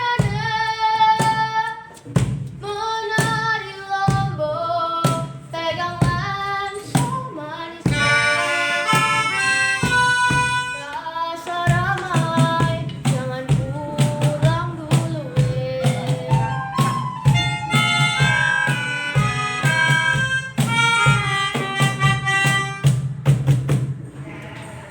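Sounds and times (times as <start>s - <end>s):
children singing in a group: 2.6s - 12.7s, 13.9s - 22.7s.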